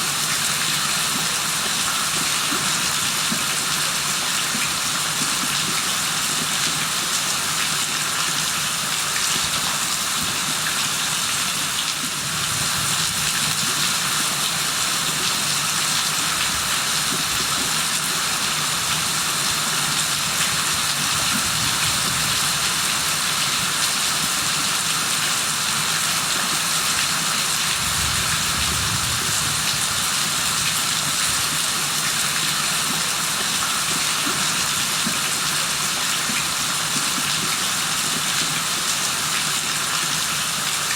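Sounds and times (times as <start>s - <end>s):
rain falling: 11.4s - 40.9s.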